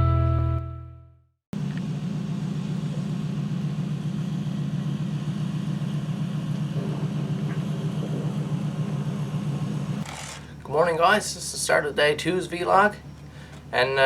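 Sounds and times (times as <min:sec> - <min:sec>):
vehicle engine droning: 0:01.6 - 0:11.4.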